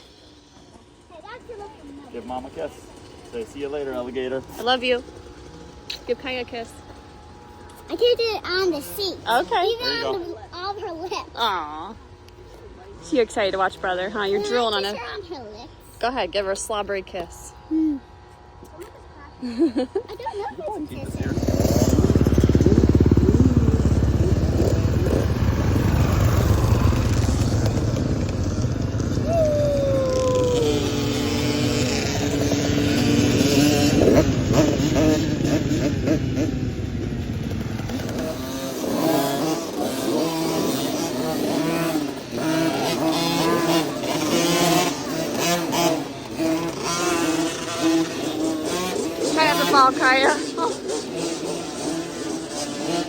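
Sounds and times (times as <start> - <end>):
dirt bike engine running: 20.8 - 53.0.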